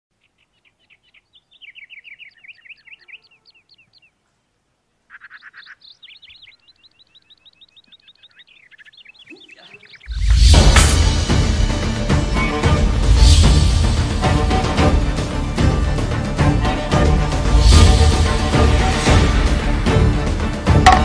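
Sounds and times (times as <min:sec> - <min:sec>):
birds chirping: 0:00.1 - 0:13.1.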